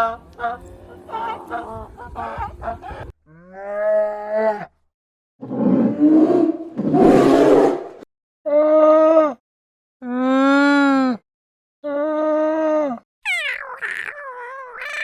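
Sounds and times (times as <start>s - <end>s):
clear pitched animal call: 13.2s - 15.0s
rough raspy animal calls: 13.3s - 15.0s.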